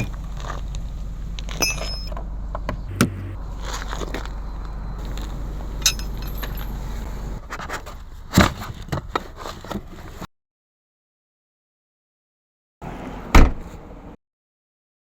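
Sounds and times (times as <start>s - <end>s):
tools clinking against car parts: 0.0s - 2.2s, 2.9s - 7.4s
low steady hum: 0.0s - 8.2s.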